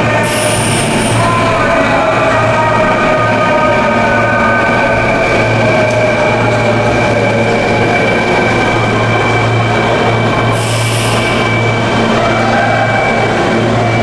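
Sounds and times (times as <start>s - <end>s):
train whine: 0.0s - 14.0s.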